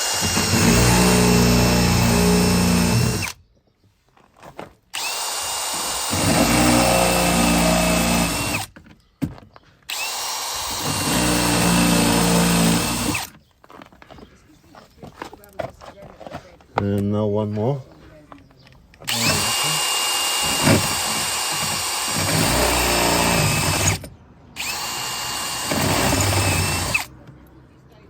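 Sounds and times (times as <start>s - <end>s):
electric drill drilling rivets: 0.0s - 3.4s, 4.9s - 8.8s, 9.9s - 13.4s, 19.0s - 27.1s.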